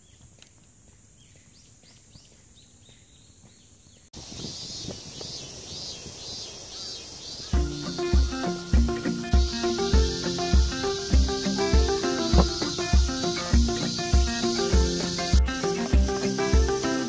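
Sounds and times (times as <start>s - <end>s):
outdoor background noise: 0.0s - 17.0s
high chirping: 4.2s - 17.0s
music with deep bass: 7.6s - 17.0s.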